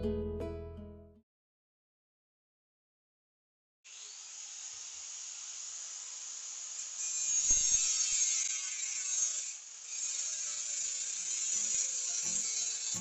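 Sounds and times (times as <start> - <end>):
tool scraping steel blade: 6.7 - 13.0.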